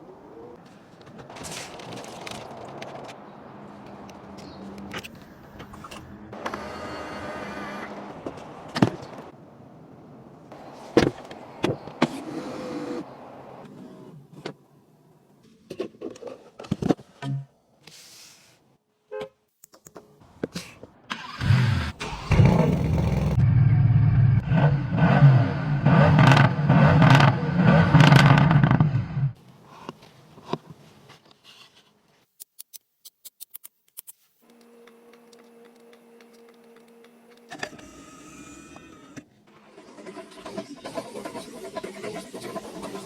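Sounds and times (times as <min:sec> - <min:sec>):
car engine starting and revving: 0:21.1 - 0:29.4.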